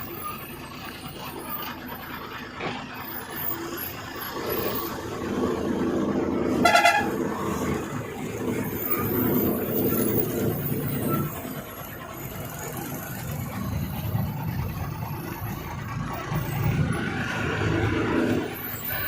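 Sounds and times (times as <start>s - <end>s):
truck engine running: 0.0s - 19.0s
short truck horn toot: 6.6s - 7.2s.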